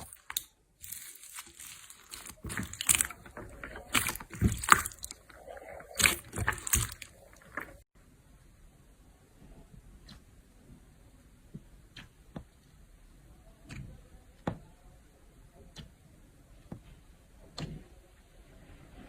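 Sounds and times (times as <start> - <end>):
slime squelching by hand: 0.0 - 7.8.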